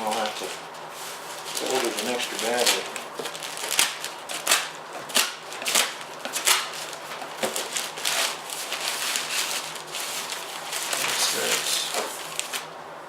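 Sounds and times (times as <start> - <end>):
packaging rustling and crinkling: 0.0 - 12.8.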